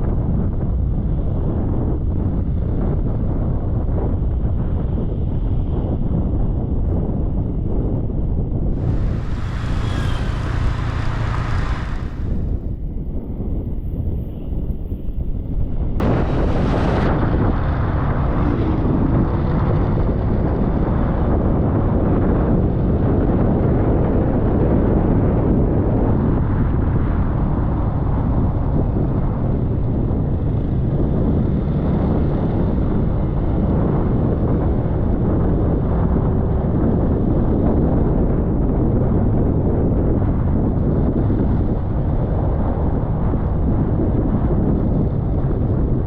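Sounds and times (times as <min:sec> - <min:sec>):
wind buffeting microphone: 0:00.0 - 0:46.0
scooter engine rumble: 0:08.7 - 0:12.9
sharp rush of hiss: 0:08.8 - 0:12.6.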